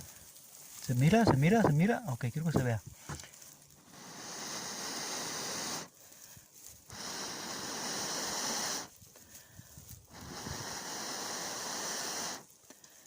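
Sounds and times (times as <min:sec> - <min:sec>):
person blowing on tinder: 0:03.8 - 0:06.1, 0:06.9 - 0:09.0, 0:10.1 - 0:12.5.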